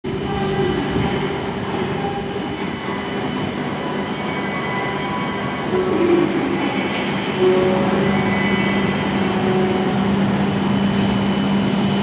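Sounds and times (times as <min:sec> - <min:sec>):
train equipment humming: 0:00.1 - 0:12.0.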